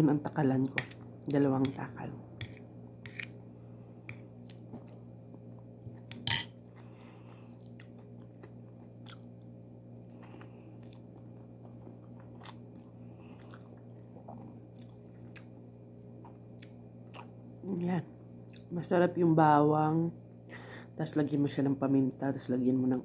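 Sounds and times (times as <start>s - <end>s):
steady low hum: 0.0s - 23.0s
person chewing food: 2.4s - 15.7s, 16.3s - 17.6s, 18.2s - 18.7s.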